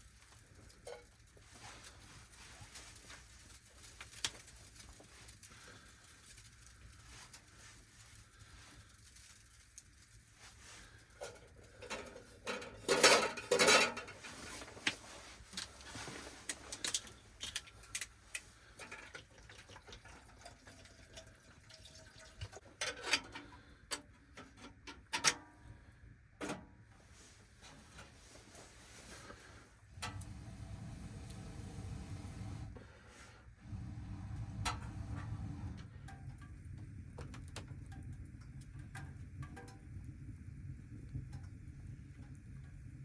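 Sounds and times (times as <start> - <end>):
pot and utensils clanking: 11.2 - 14.9, 22.5 - 25.5.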